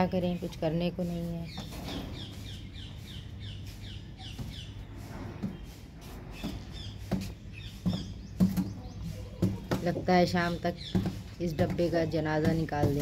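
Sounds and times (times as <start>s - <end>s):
small bird chirping: 0.0s - 13.0s
hen pecking cardboard box: 6.4s - 13.0s.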